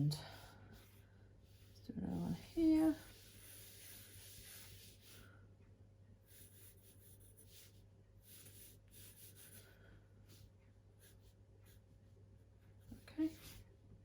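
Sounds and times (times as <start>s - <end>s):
pencil scratching on paper: 0.1s - 5.3s, 6.2s - 12.0s.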